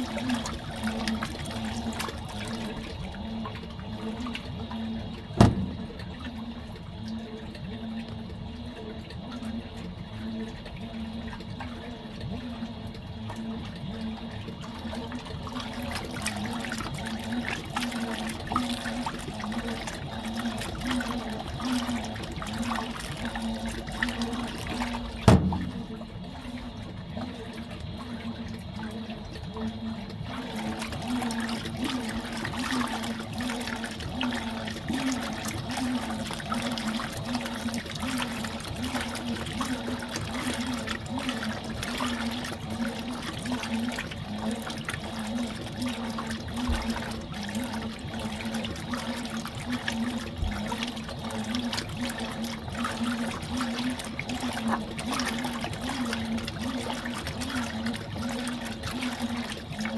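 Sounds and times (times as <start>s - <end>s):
washing machine motor hum: 0.0s - 59.9s
water sloshing in tub: 0.0s - 59.9s
sharp knock: 5.4s - 6.1s, 25.3s - 26.0s.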